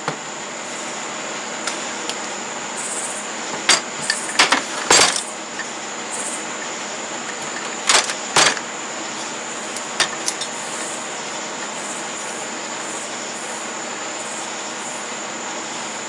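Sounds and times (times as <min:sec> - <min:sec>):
insect trilling: 0:02.8 - 0:03.4, 0:05.2 - 0:07.5, 0:09.0 - 0:16.0.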